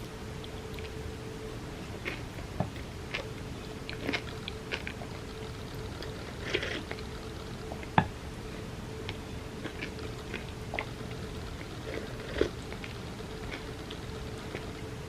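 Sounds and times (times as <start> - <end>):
wet chewing: 0.4 - 1.0, 1.8 - 8.1, 9.0 - 15.0.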